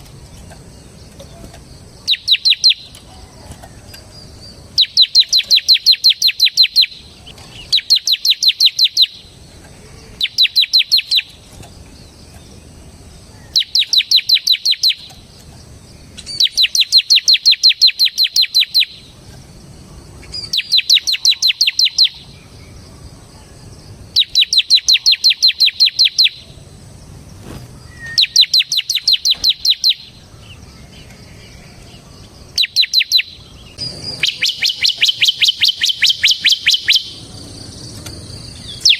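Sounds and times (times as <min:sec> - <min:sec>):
bird singing rattling trill: 0:00.0 - 0:38.9.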